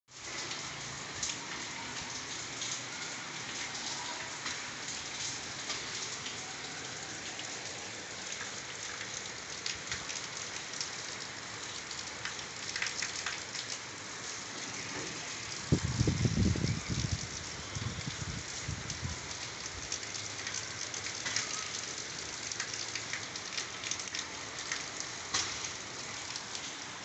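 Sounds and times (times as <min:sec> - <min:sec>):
rain hiss on concrete: 0:00.1 - 0:27.0
raindrops splatting close: 0:00.1 - 0:27.0.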